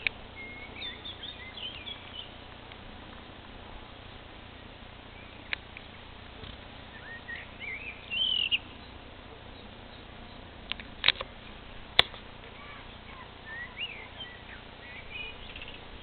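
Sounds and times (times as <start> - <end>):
bird gliding chirps: 0.0 - 2.4, 5.0 - 6.0, 6.8 - 10.6, 12.6 - 16.0
outdoor background hiss: 0.0 - 16.0
sharp click: 10.7 - 11.3.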